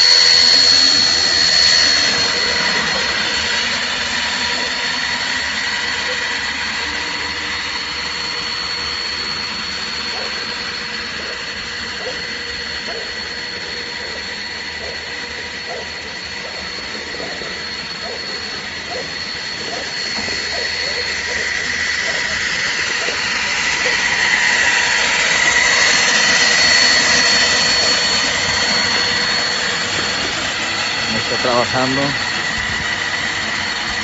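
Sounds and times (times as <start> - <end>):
blower whining over rushing air: 0.0 - 34.0.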